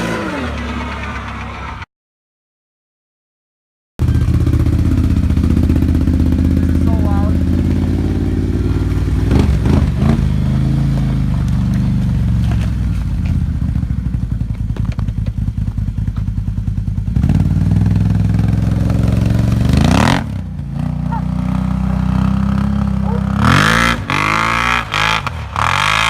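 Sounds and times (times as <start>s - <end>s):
loud engine revving: 0.0s - 1.8s, 4.0s - 12.7s, 17.0s - 26.0s.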